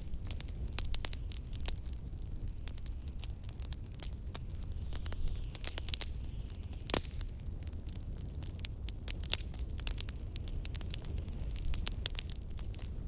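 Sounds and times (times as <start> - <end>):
fireplace crackling and popping: 0.0 - 13.0
blizzard wind rumble: 9.7 - 13.0.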